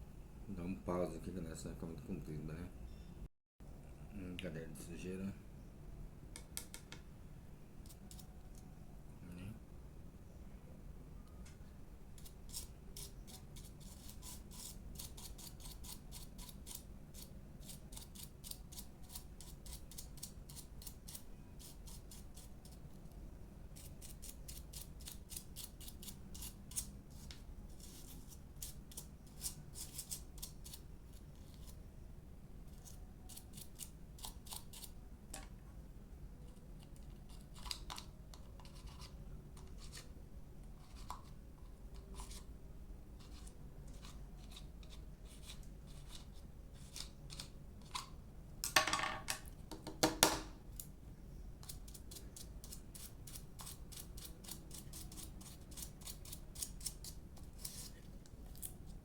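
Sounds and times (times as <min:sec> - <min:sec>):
small tool scraping dirt: 0:51.6 - 0:58.8.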